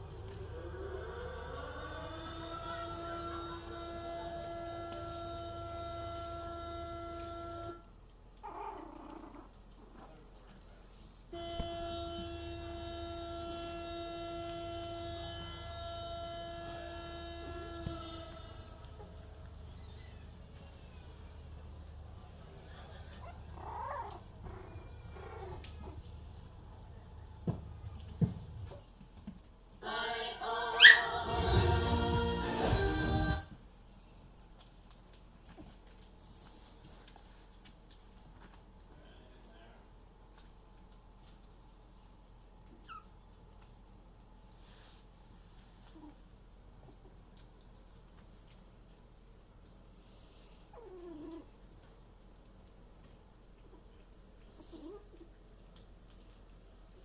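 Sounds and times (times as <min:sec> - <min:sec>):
steady humming tone: 0:00.0 - 0:07.9, 0:11.3 - 0:28.3
small dog vocalizing: 0:08.4 - 0:10.2, 0:23.1 - 0:26.0, 0:30.8 - 0:31.2, 0:50.7 - 0:51.5.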